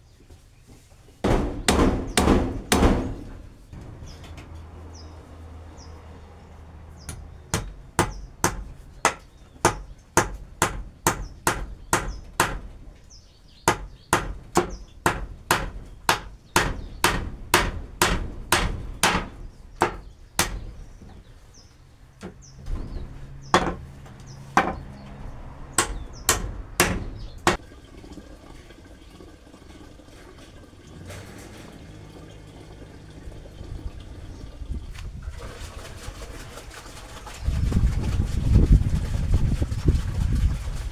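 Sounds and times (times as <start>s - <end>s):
birds chirping faintly: 0.0s - 27.6s
hammer blows: 1.2s - 4.8s, 7.0s - 12.9s, 13.7s - 21.2s, 22.2s - 27.6s.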